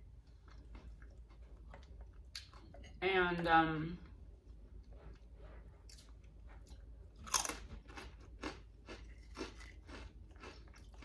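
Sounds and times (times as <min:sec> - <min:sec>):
crunchy chewing: 0:05.8 - 0:11.0
bite into crunchy chip: 0:07.2 - 0:11.0.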